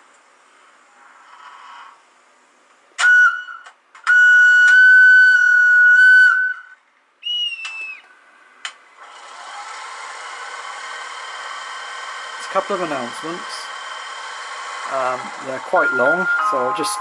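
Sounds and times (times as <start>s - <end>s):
shrill whistle tones from small speaker: 3.0s - 8.2s, 15.6s - 17.0s.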